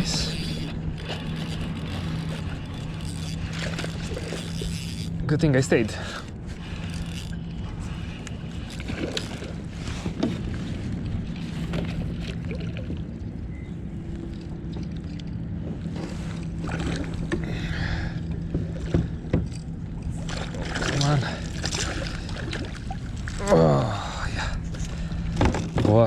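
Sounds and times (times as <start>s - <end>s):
steady low hum: 0.0s - 26.0s
water rumbling around kayak: 0.0s - 26.0s
wind: 0.0s - 26.0s
knocks and clicks of fishing gear: 14.3s - 17.5s, 18.2s - 22.7s, 24.8s - 26.0s.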